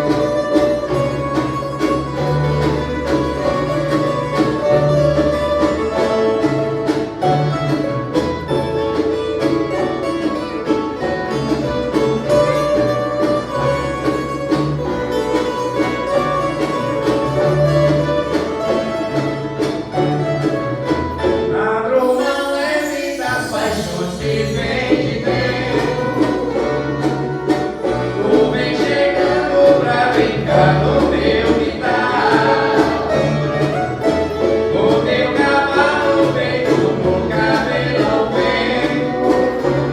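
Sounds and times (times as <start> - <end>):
violas strummed and plucked: 0.0 - 39.9
voices singing: 22.0 - 26.7, 28.0 - 33.8, 34.5 - 39.9.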